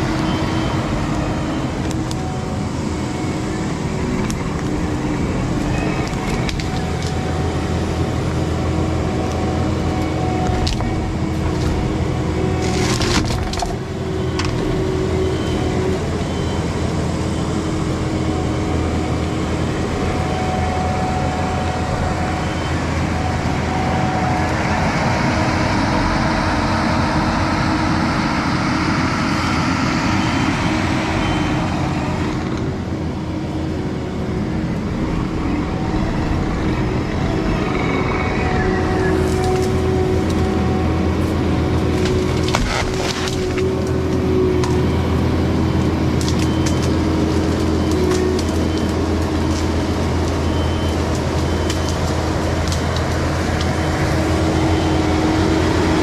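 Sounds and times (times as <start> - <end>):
diesel engine running under load: 0.0 - 56.0
wood cracking and splintering: 5.4 - 7.4, 10.4 - 15.1, 39.1 - 45.0, 45.7 - 54.6.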